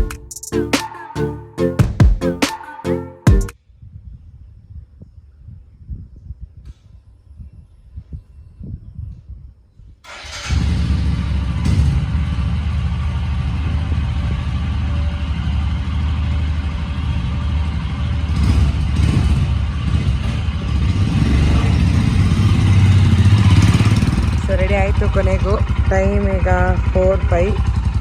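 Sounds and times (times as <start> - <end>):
motorcycle engine idling: 10.9 - 28.0.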